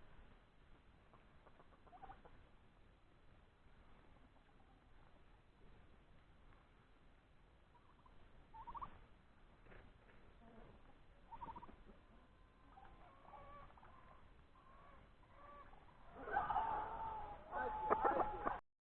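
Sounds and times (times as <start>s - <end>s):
turkeys calling: 1.0s - 2.5s, 3.9s - 5.8s, 7.6s - 18.6s.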